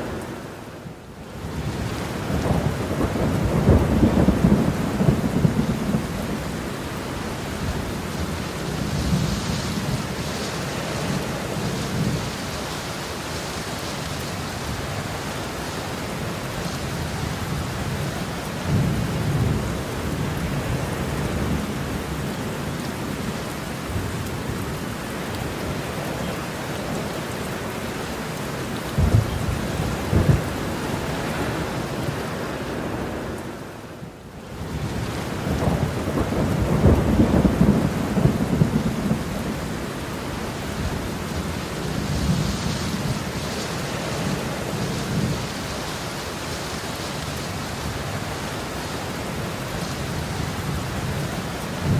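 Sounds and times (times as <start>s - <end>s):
heavy rain falling: 0.0s - 51.9s
thunder rumbling: 1.5s - 10.3s, 28.9s - 33.7s, 34.6s - 45.6s
sharp thunder claps: 29.0s - 30.6s.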